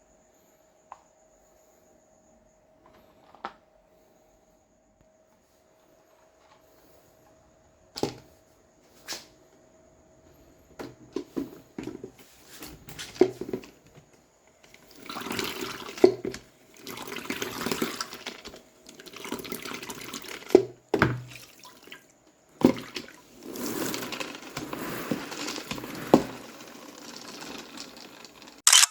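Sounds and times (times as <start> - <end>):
water sloshing in a mop bucket: 10.7 - 14.0, 14.6 - 28.6.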